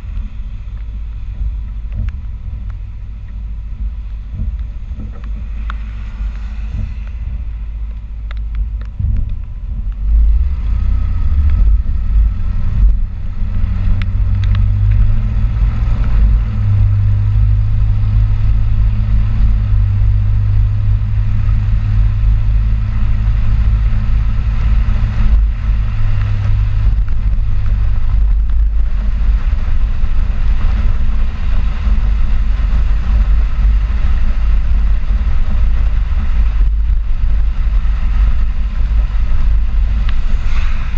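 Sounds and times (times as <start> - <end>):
pickup truck driving: 0.0 - 40.9.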